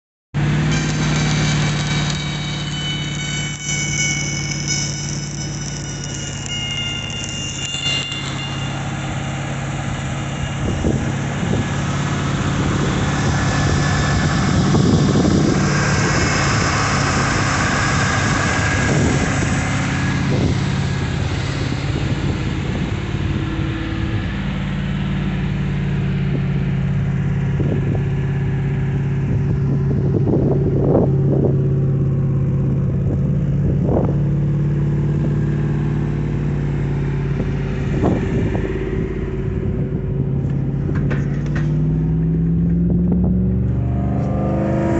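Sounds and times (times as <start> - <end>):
truck engine running: 0.4 - 44.9
arc welding crackle and sizzle: 0.7 - 8.6
high whistle: 0.7 - 12.4.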